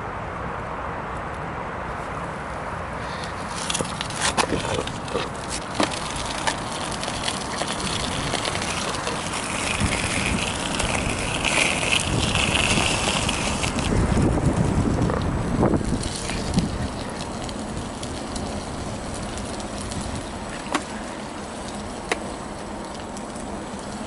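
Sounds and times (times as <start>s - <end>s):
rushing and tyre noise: 0.0s - 24.0s.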